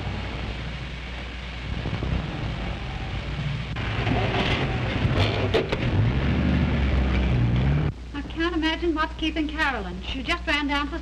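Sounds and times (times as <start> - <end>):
engines rumbling: 0.0 - 8.5
engine rising in pitch: 2.0 - 7.9.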